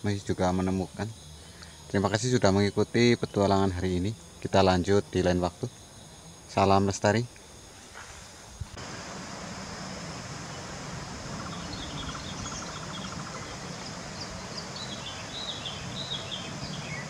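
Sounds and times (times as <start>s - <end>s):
high insect drone: 0.0s - 17.0s
small birds chirping: 8.8s - 17.0s
fast bird trill: 11.3s - 17.0s.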